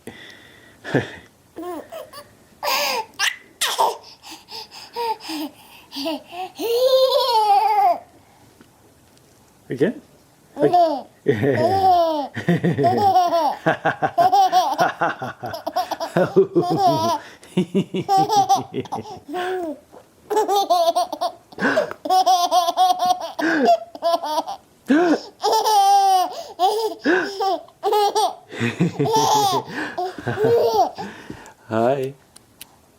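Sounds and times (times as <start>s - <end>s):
baby giggling and squealing: 1.6s - 8.0s, 10.6s - 13.6s, 25.2s - 28.4s, 29.0s - 31.0s.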